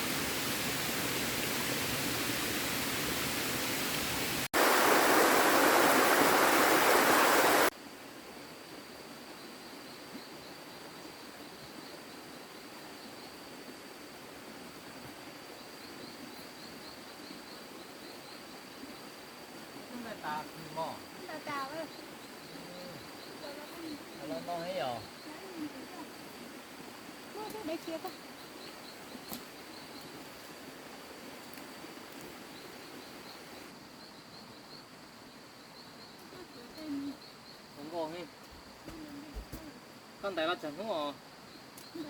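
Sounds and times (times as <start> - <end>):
steady rushing noise: 4.3 - 7.7.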